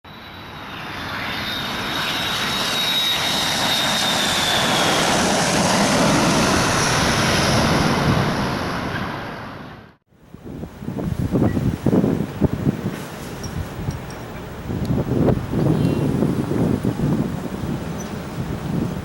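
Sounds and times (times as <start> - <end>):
jet airliner passing low: 0.1 - 10.0, 14.3 - 19.0
high jet fan whine: 0.1 - 19.0.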